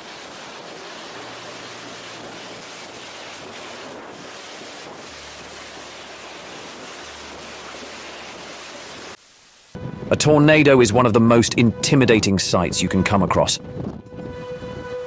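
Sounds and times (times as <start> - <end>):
strong wind rushing: 9.8 - 15.0
wind buffeting microphone: 9.8 - 15.0.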